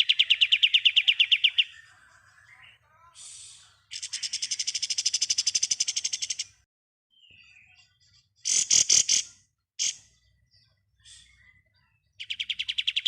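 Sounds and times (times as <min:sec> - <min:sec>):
bird harsh chattering notes: 0:00.0 - 0:06.6, 0:08.4 - 0:10.2.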